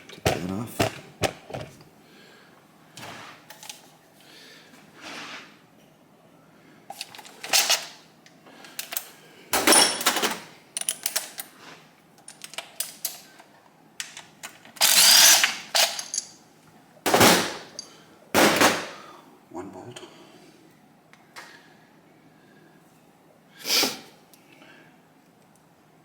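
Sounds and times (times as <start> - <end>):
impact wrench rattling bursts: 14.8 - 16.3.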